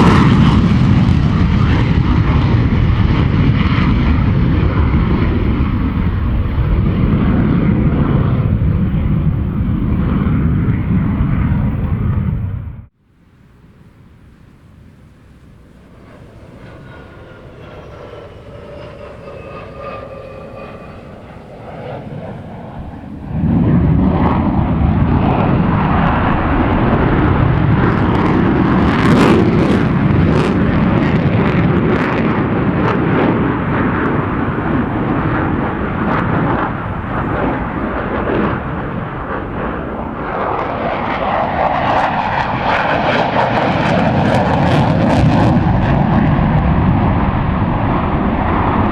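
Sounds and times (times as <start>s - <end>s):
fighter jet on afterburner: 14.8s - 48.9s.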